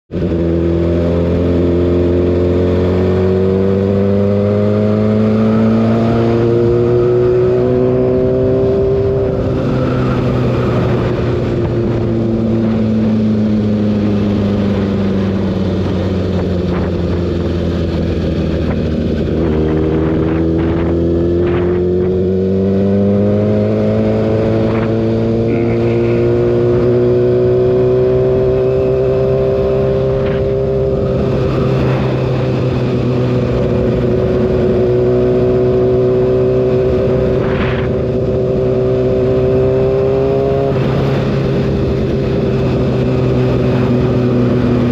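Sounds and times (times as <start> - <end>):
motorcycle engine accelerating: 0.1 - 44.9.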